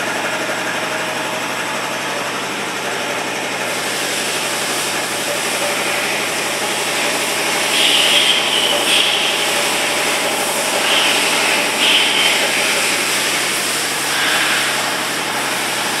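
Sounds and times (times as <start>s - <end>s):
lathe running: 0.0s - 16.0s
higher machine hiss surges: 3.7s - 16.0s.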